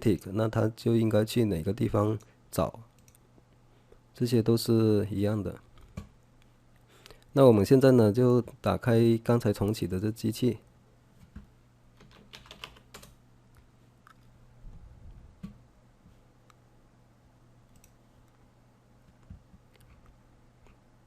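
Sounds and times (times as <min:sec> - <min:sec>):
faint low hum: 0:00.0 - 0:21.0
typing on computer keyboard: 0:12.0 - 0:13.2.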